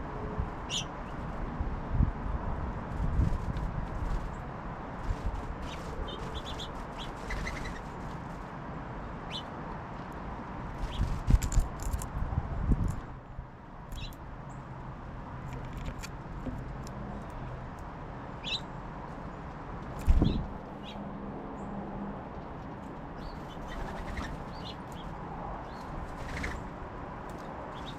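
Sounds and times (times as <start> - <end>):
songbirds chirping: 5.6 - 9.7, 13.2 - 27.9.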